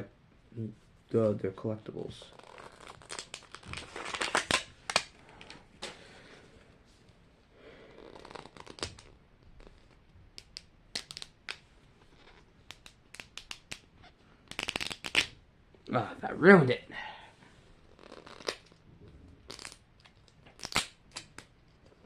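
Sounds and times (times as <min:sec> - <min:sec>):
plastic packaging crinkling and tearing: 0:02.4 - 0:05.1.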